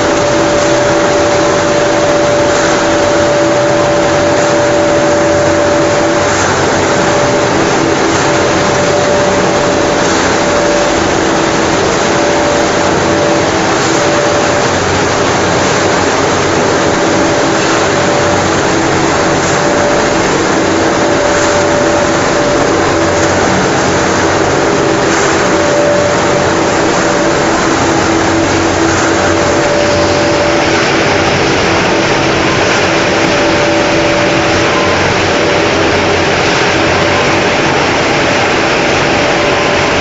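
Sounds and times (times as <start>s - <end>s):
constant machine hums: 0.0s - 40.0s
production line machinery running: 0.0s - 40.0s.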